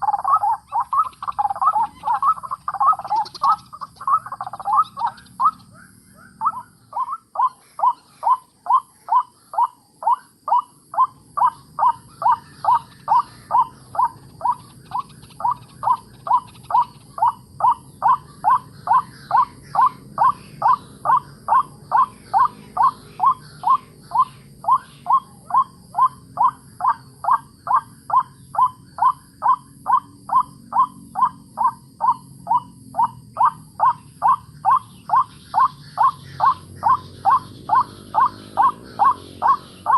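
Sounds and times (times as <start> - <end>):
waterhen call: 0.0 - 5.7, 6.4 - 39.9.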